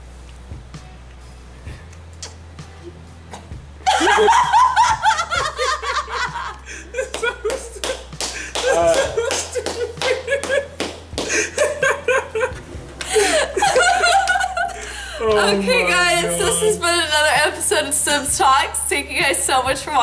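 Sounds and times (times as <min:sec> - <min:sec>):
people laughing hard: 0:03.8 - 0:17.0.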